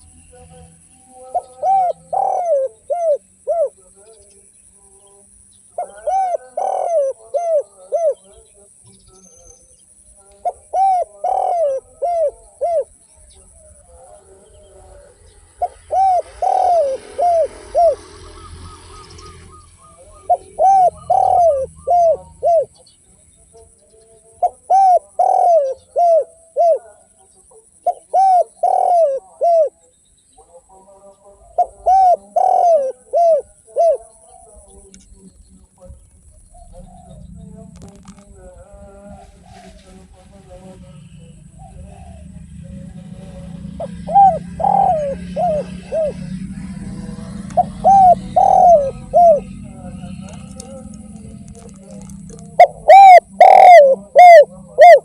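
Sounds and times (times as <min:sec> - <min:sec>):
dove cooing: 0:00.0 - 0:04.1, 0:05.8 - 0:08.4, 0:10.4 - 0:23.0, 0:24.4 - 0:29.8, 0:31.4 - 0:55.0
hiss and low rumble: 0:34.4 - 0:47.8.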